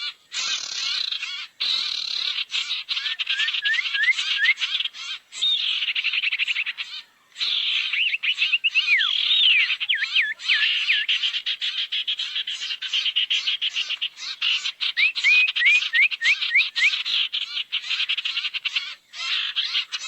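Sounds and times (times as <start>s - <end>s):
rising whistled bird notes: 3.0s - 4.6s, 7.8s - 11.1s, 15.0s - 17.0s.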